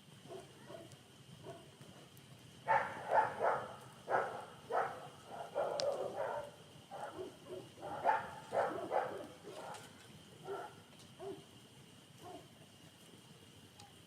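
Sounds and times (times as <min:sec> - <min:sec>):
dog barking: 0:00.2 - 0:01.7, 0:02.7 - 0:11.5, 0:12.2 - 0:12.5.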